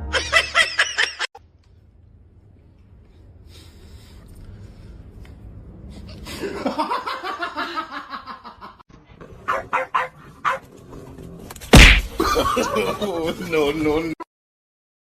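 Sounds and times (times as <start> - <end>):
loud thump: 11.7 - 12.2.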